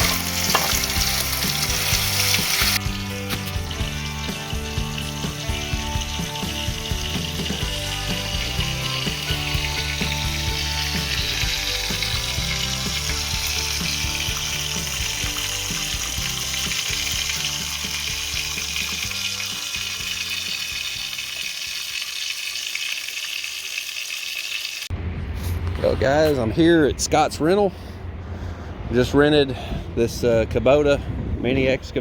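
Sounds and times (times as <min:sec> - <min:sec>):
music with moving bass line: 0:00.0 - 0:21.2.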